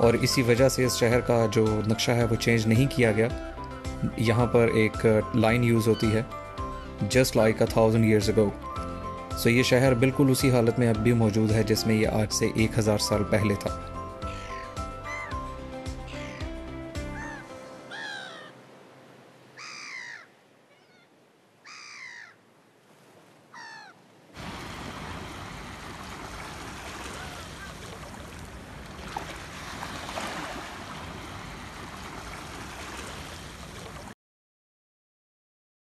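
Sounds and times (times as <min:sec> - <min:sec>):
bird cawing: 0:06.6 - 0:07.0, 0:14.2 - 0:18.6, 0:19.6 - 0:22.5, 0:23.5 - 0:24.0, 0:26.8 - 0:28.1
surf washing: 0:22.8 - 0:34.1.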